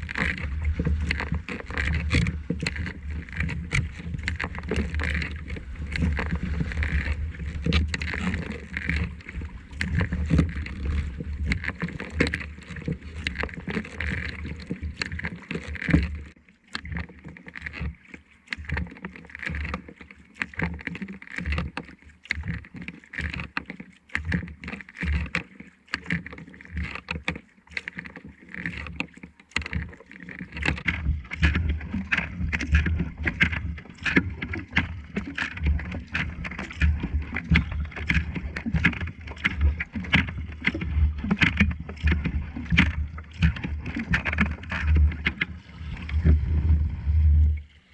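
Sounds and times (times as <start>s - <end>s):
paddle splashing in water: 0.0s - 47.9s
low rumble: 45.6s - 47.7s.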